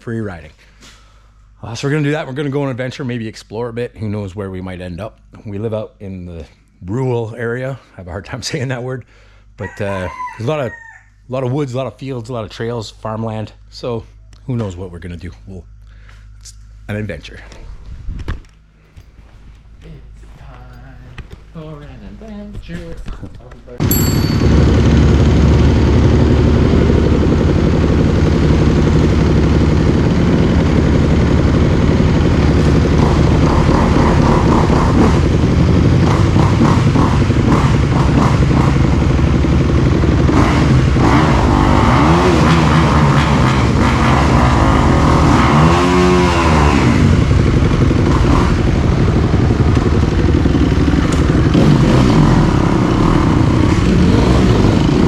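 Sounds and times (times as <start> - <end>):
dirt bike engine revving: 23.7 - 55.0.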